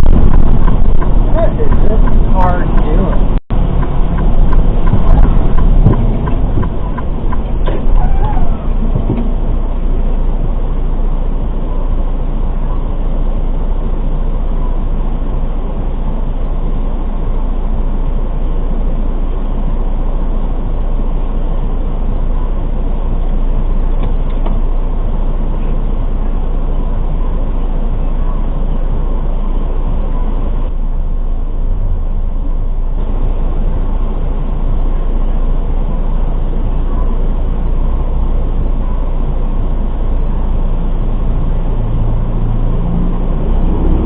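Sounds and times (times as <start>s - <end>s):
vehicle engine and road noise: 0.0s - 44.0s.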